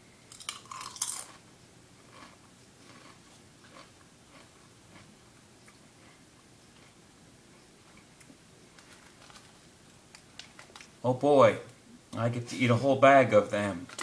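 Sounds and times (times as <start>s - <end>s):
person crunching potato chip: 0.3s - 1.4s, 2.0s - 5.1s.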